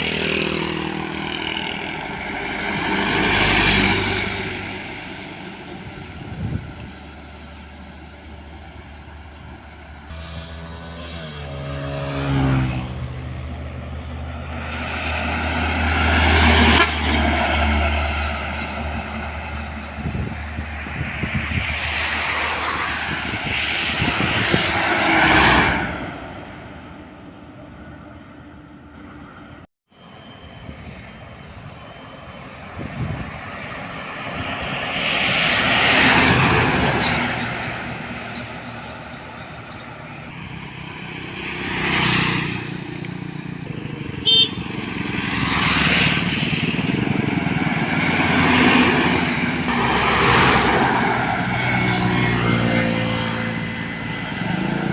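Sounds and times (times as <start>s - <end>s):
diesel engine drone: 0.0s - 54.9s
vehicles passing: 0.0s - 54.9s.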